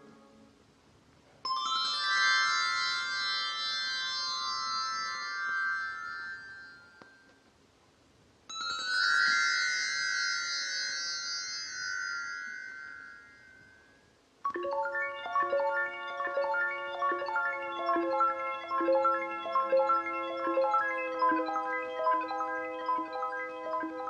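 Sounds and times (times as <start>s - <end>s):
bell-like synthesizer tones: 14.5s - 24.0s.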